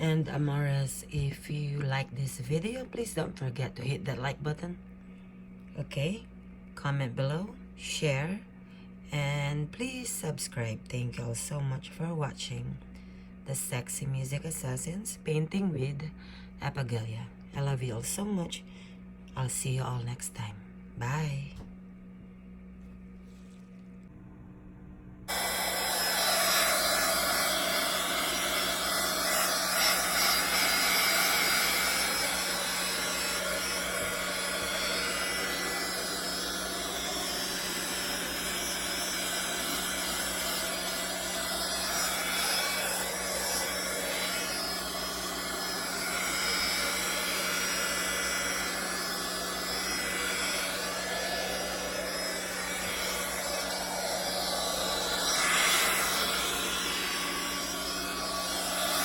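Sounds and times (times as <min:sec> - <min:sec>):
electric blower running: 0:00.0 - 0:01.3, 0:25.3 - 0:59.0.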